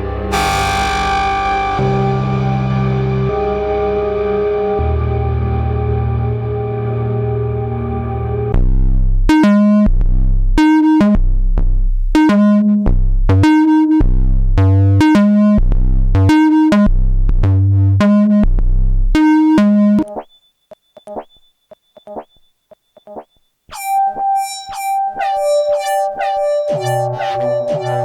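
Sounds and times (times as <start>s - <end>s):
bright plucked synth notes: 0.0s - 3.4s, 23.0s - 28.0s
synthesizer held note: 0.0s - 6.2s, 23.7s - 28.0s
deep synth bass notes: 0.0s - 20.1s, 23.1s - 28.0s
faint high blips: 20.0s - 28.0s.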